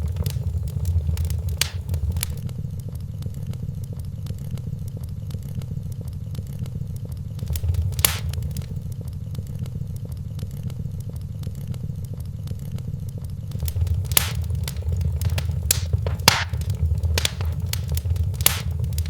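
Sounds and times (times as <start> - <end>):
wood fire crackling in fireplace: 0.0 - 2.5, 6.9 - 11.2, 13.0 - 19.0.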